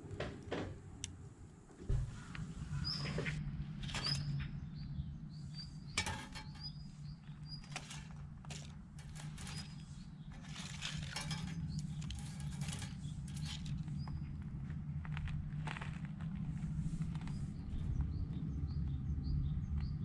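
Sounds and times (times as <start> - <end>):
low steady hum: 0.0 - 20.0
crackling embers: 0.1 - 17.4.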